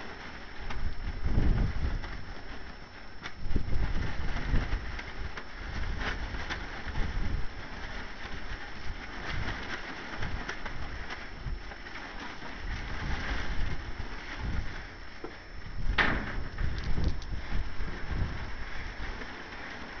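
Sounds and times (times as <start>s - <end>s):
tarp flapping and snapping: 0.0s - 20.0s
wind buffeting microphone: 0.6s - 20.0s.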